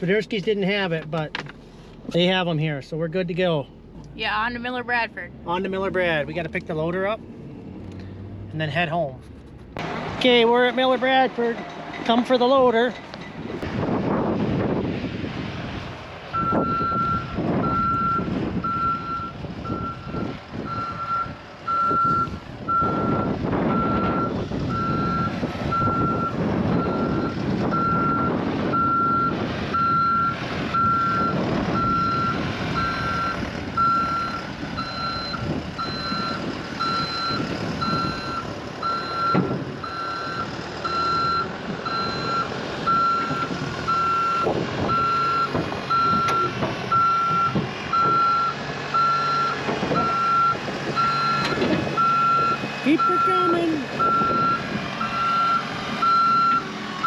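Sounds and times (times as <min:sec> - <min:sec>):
vehicle engine running: 0:00.0 - 0:57.0
backup alarm beeping: 0:16.4 - 0:56.6.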